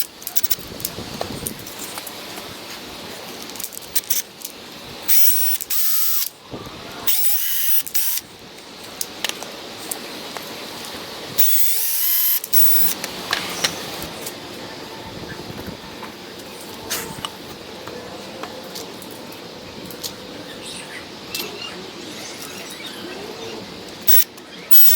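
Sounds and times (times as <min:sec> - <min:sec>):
power drill whining: 0:05.1 - 0:06.3, 0:07.1 - 0:08.2, 0:11.4 - 0:13.0, 0:24.1 - 0:24.9.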